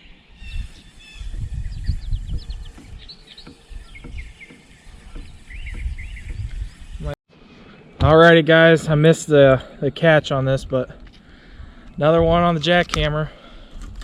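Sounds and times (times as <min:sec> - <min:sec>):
small birds chirping: 0:00.0 - 0:08.2
wind rumble: 0:00.0 - 0:13.2
microphone handling noise: 0:00.4 - 0:06.9, 0:10.6 - 0:13.1.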